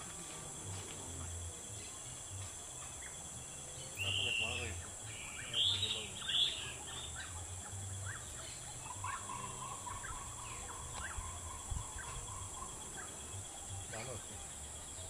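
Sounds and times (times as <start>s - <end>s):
high insect hum: 0.0s - 15.0s
bird chirps: 1.2s - 15.0s
harsh bird calls: 3.0s - 15.0s.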